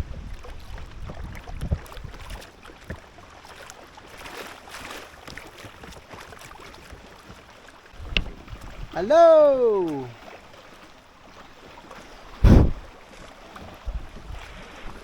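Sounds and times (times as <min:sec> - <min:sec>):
wind rumbling on microphone: 0:00.0 - 0:02.3, 0:12.3 - 0:12.9, 0:13.8 - 0:15.0
paddle splashing in water: 0:00.3 - 0:15.0.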